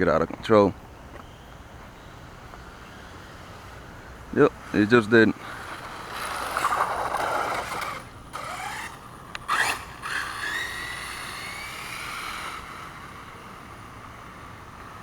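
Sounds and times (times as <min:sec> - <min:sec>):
monster truck engine whining: 0:04.4 - 0:15.0.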